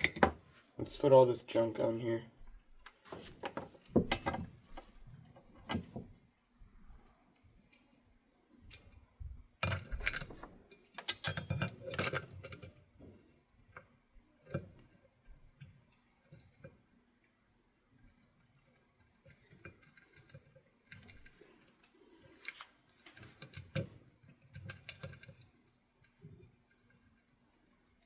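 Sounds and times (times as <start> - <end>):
small metal parts clinking: 0.0 - 0.4, 9.6 - 12.8.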